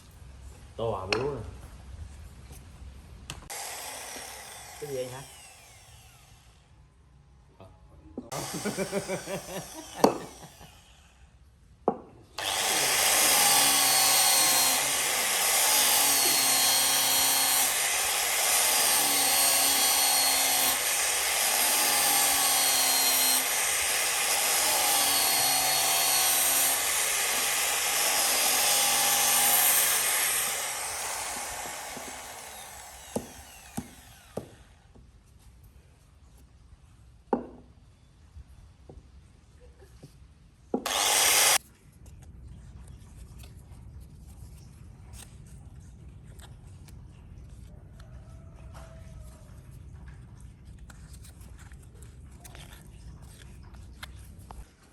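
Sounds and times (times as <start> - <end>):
power tool cutting wood: 3.5 - 6.7, 8.3 - 11.2, 12.4 - 34.9, 40.8 - 41.6.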